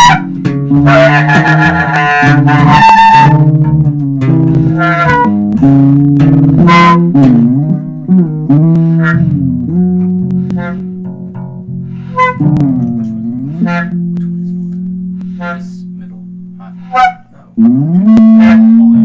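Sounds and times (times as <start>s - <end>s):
small band playing: 0.0s - 19.0s.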